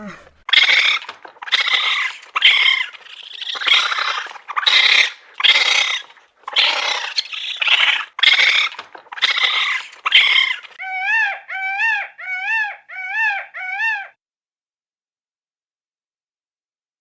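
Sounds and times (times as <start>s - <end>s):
animal rasping hisses: 0.5s - 10.8s
animal whining calls: 0.5s - 14.2s.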